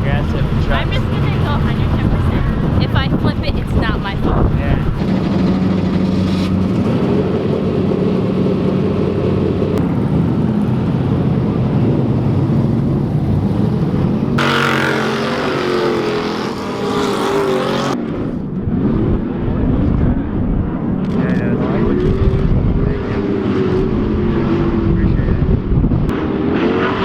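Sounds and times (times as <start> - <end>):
racing engines revving: 0.0 - 18.1, 21.0 - 27.0.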